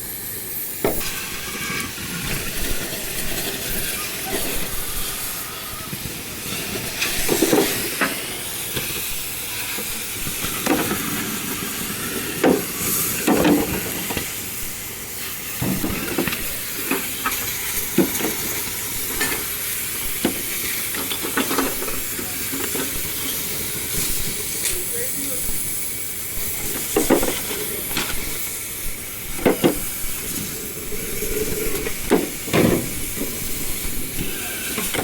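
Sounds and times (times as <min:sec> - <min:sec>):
steady hiss: 0:00.0 - 0:35.0
sharp knocks and clanks: 0:29.3 - 0:33.5.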